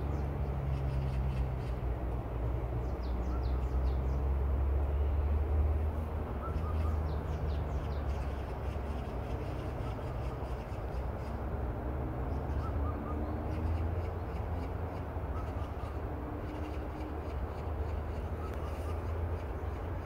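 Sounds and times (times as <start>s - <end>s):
faint bird calling: 6.3s - 11.4s, 12.3s - 19.9s.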